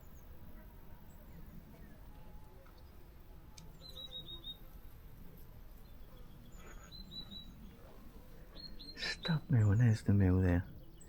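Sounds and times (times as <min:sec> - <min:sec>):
small bird calling: 0:05.9 - 0:10.1.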